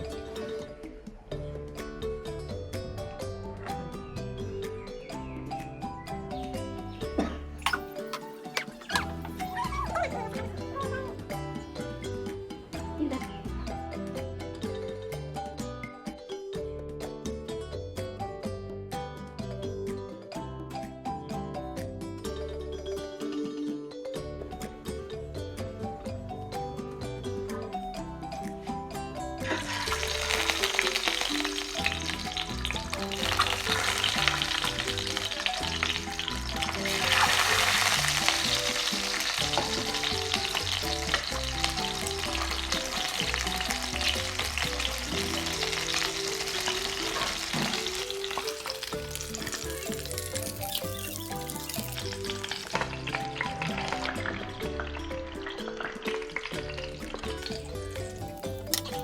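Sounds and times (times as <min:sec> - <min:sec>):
instrumental music melody: 0:00.0 - 0:59.0
food sizzling in hot oil: 0:29.4 - 0:54.5, 0:55.3 - 0:59.0.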